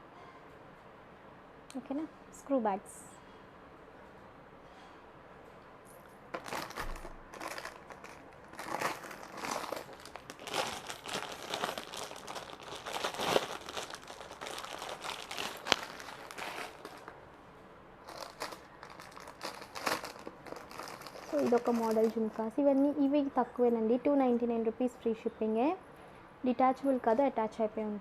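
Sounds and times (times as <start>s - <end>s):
packaging crinkling and rustling: 6.4s - 17.2s, 18.0s - 22.6s.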